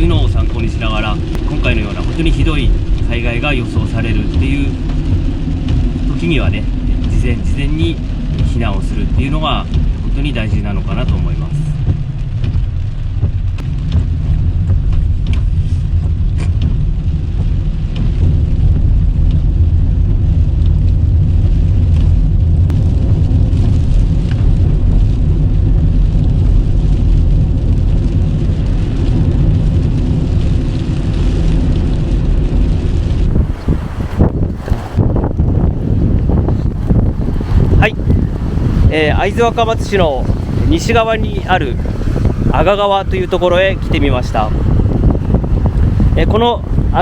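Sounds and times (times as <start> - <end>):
car interior rumble: 0.0 - 47.0.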